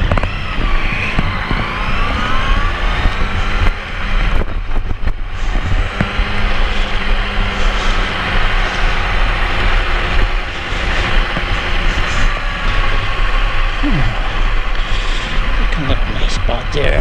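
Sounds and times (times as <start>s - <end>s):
motorcycle engine running: 0.0s - 17.0s
wind rumble on microphone: 0.0s - 17.0s.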